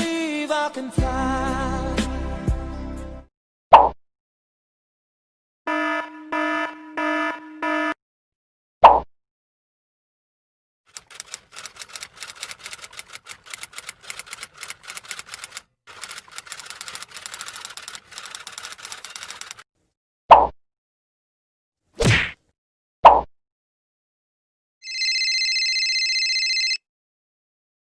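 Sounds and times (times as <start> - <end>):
short buzzer: 5.7 - 8.0
rapid clacking of keys: 10.9 - 19.6.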